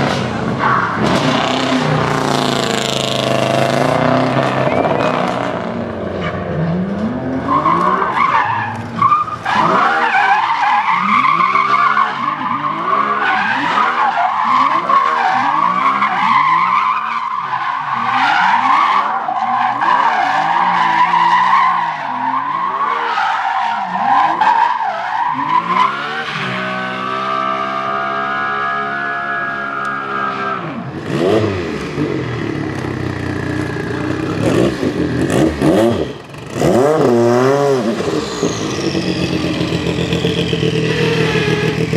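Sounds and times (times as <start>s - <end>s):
car engine revving: 0.0s - 16.7s, 25.2s - 41.9s
tyres squealing: 38.2s - 41.9s.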